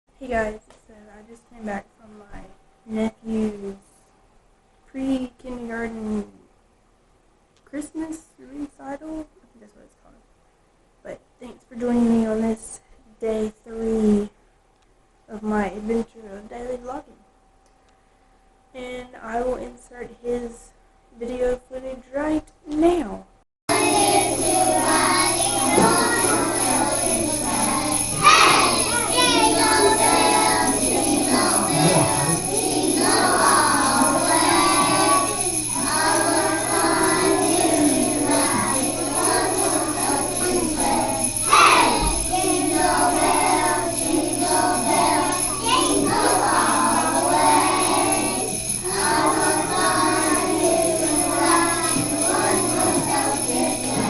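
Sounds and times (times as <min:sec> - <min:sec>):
low electrical hum: 0:00.1 - 0:54.0
children singing: 0:23.7 - 0:54.0
small metal chimes shaken: 0:23.7 - 0:54.0.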